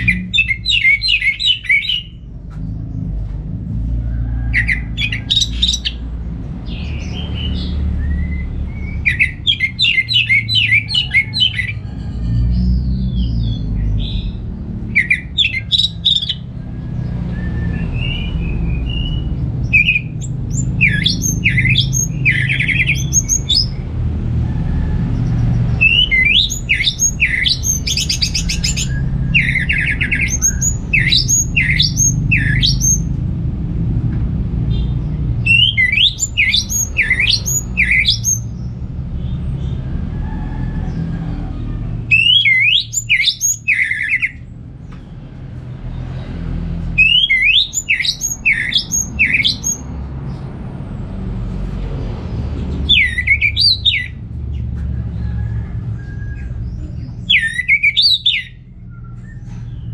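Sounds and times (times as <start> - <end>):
steady low rumble: 0.0 - 42.2
thrush whistling song: 6.7 - 11.8, 17.2 - 23.8, 25.7 - 33.1, 35.4 - 38.5, 42.1 - 44.4, 47.0 - 49.9, 52.9 - 54.2, 57.3 - 59.8.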